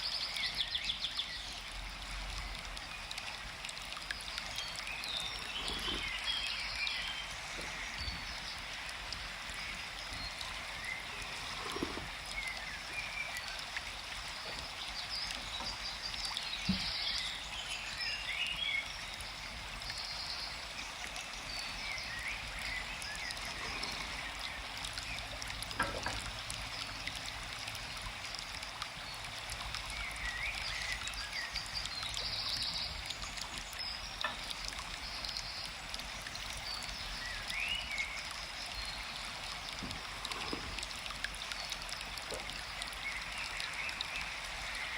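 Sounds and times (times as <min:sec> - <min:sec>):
stream flowing: 0:00.0 - 0:44.9
small birds chirping: 0:04.0 - 0:27.2.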